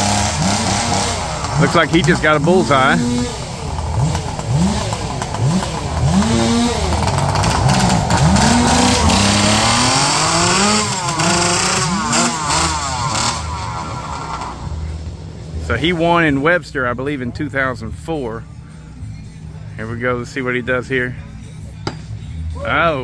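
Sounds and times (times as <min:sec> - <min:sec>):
chainsaw engine revving: 0:00.0 - 0:16.2.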